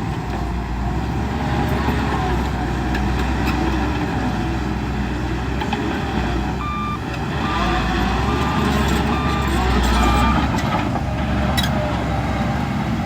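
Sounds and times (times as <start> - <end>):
diesel engine of heavy machinery: 0.0 - 13.0
reversing alarm beeps: 6.6 - 7.0, 8.2 - 10.5.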